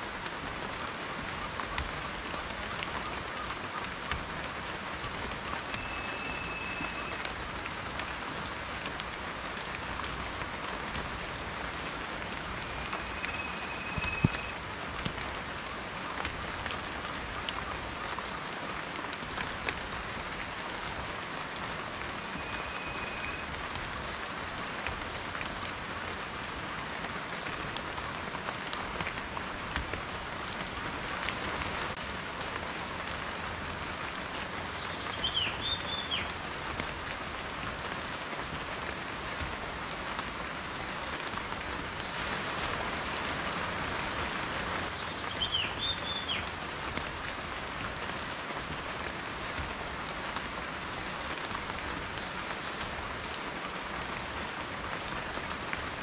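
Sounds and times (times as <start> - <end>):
steady rain: 0.0 - 56.0
raindrops ticking: 0.1 - 42.8.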